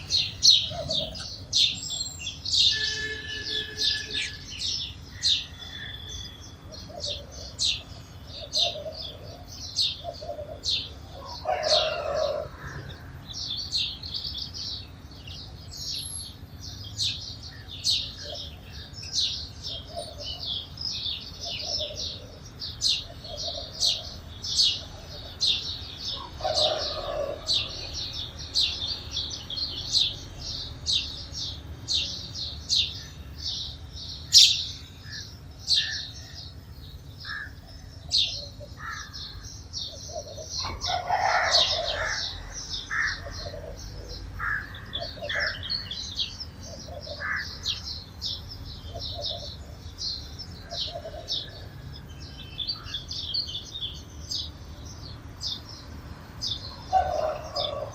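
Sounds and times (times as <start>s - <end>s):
lower longer bird call: 0.0s - 7.6s
sparrows chirping: 0.0s - 57.9s.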